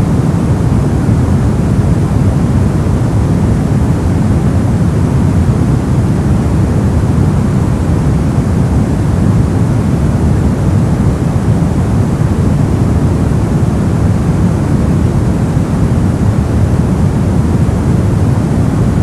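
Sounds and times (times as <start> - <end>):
brown noise rumbling hiss: 0.0 - 19.0.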